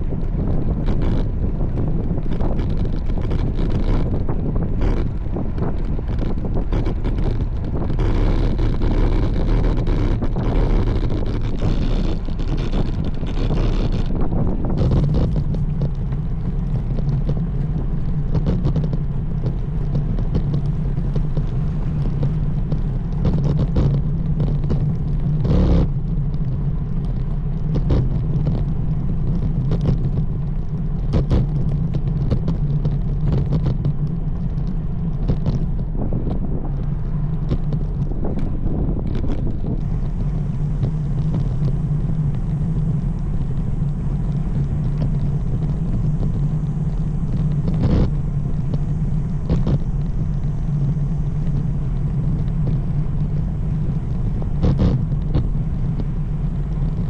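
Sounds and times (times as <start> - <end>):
bicycle road noise: 0.0 - 57.0
steady low hum: 0.0 - 57.0
wind rushing over microphone: 0.0 - 57.0.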